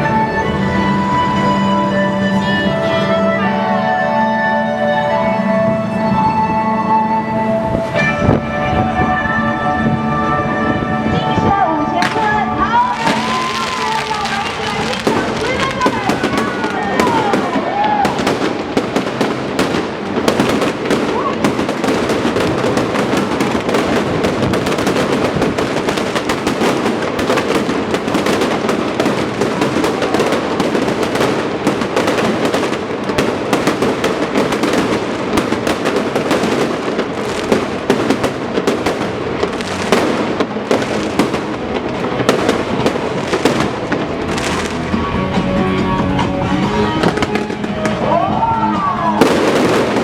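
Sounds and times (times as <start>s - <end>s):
fireworks bangs and crackling: 11.4s - 50.0s.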